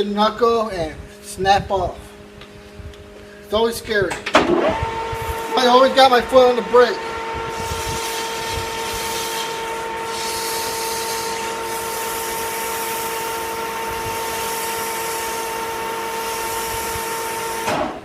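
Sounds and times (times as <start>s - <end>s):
metal lathe whining: 4.4s - 17.8s.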